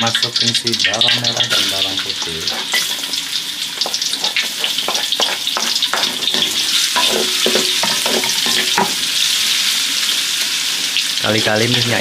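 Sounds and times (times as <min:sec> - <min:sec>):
shallots and garlic sizzling in oil: 0:00.0 - 0:12.0
spatula scraping pan: 0:01.3 - 0:09.5.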